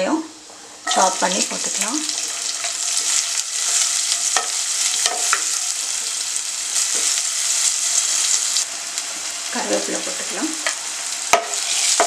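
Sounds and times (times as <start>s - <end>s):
food sizzling in hot oil: 0.3s - 12.0s
wooden spatula knocking on pan: 11.3s - 11.6s.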